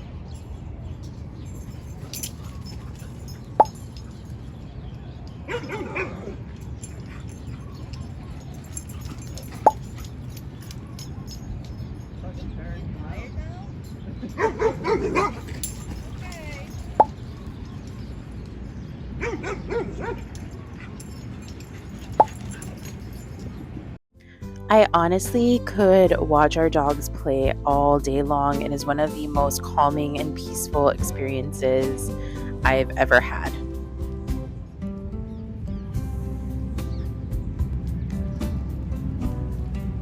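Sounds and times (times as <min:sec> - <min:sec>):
dogs barking: 0:01.5 - 0:12.2, 0:14.1 - 0:23.9
dog yipping: 0:01.8 - 0:04.3, 0:05.4 - 0:11.9, 0:14.3 - 0:18.0, 0:19.2 - 0:23.7.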